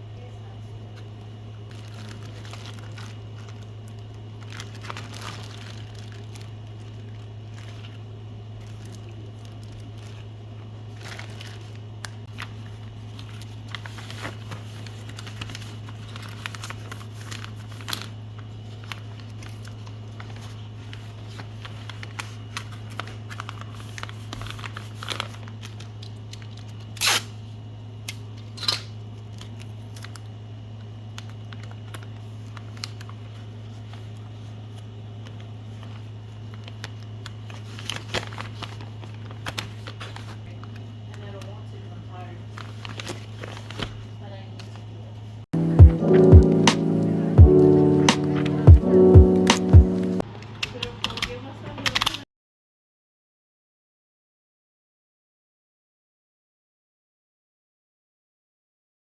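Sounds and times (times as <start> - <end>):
steady low hum: 45.6 - 50.2.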